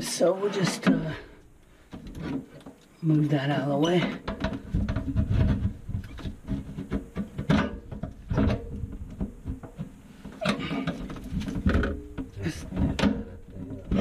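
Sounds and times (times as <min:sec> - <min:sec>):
garbage disposal unit being handled: 0:00.0 - 0:14.0.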